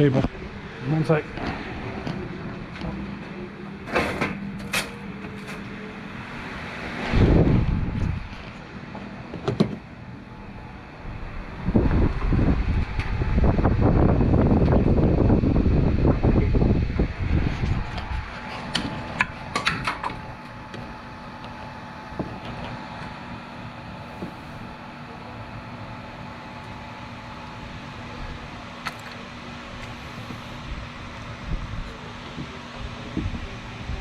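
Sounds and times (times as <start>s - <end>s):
electric fan humming: 0.0s - 34.0s
loud low rumble: 5.9s - 8.4s, 10.1s - 18.6s.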